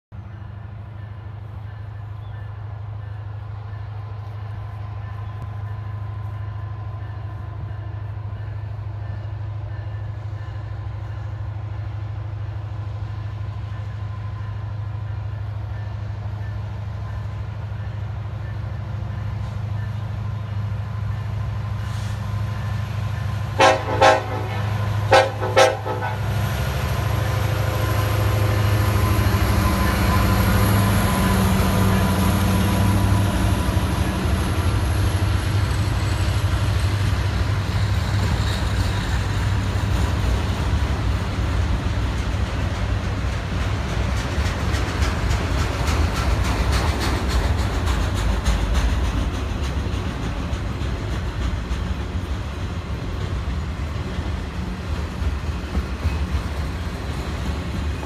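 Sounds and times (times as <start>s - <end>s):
locomotive engine drone: 0.2s - 58.0s
locomotive horn blasts: 23.6s - 26.4s.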